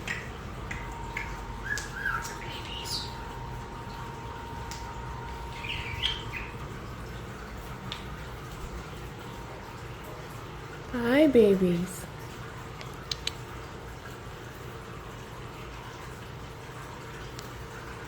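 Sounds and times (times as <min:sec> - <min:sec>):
starlings calling: 0:00.0 - 0:09.0.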